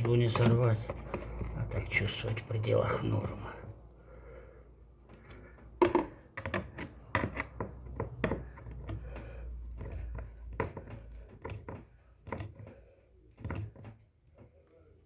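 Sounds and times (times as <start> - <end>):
hand tools clicking and knocking: 0.0 - 2.0, 5.0 - 15.0.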